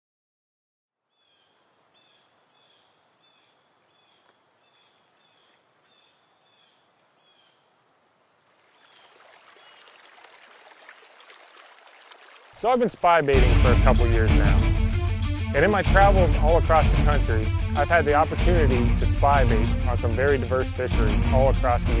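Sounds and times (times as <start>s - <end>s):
faint bird chirping: 1.1s - 7.8s, 8.6s - 10.0s.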